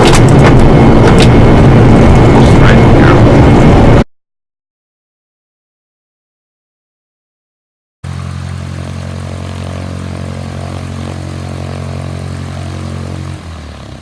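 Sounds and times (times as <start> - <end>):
aircraft engine running: 0.0 - 4.0, 8.0 - 14.0.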